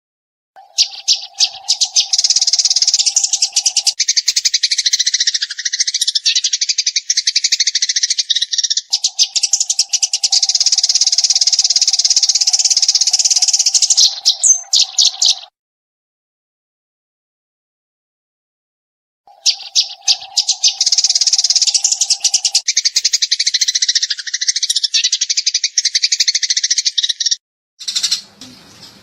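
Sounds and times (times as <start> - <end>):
sparrows chirping rapidly: 0.6 - 15.5, 19.3 - 29.0.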